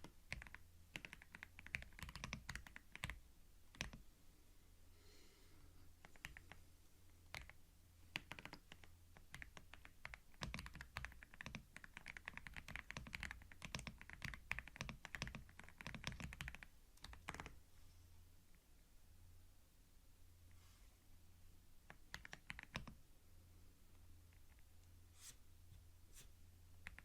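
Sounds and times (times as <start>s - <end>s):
typing on a computer keyboard: 0.0s - 4.0s, 6.0s - 6.6s, 7.2s - 17.6s, 21.9s - 23.0s
faint low hum: 0.0s - 27.0s.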